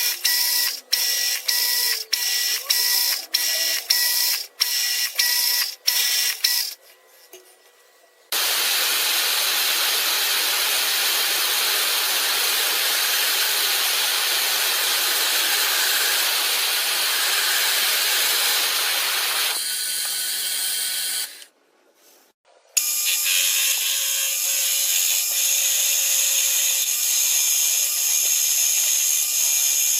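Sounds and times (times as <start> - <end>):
sharp mechanical clicks: 0.0 - 6.8.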